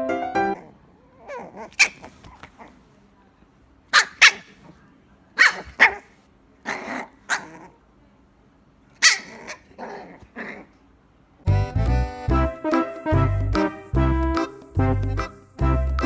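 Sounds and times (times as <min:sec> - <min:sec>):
puppy yapping: 0:00.6 - 0:02.7, 0:03.9 - 0:04.6, 0:05.4 - 0:07.8, 0:09.0 - 0:10.7.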